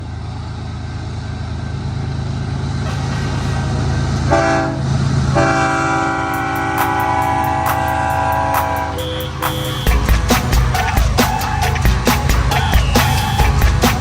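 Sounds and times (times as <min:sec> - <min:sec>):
diesel locomotive engines rumbling: 0:00.0 - 0:14.0
locomotive horn blasts: 0:02.9 - 0:13.4.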